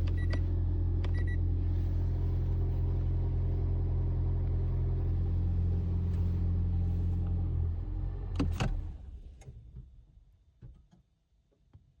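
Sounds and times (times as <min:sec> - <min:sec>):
car engine humming: 0:00.0 - 0:09.4.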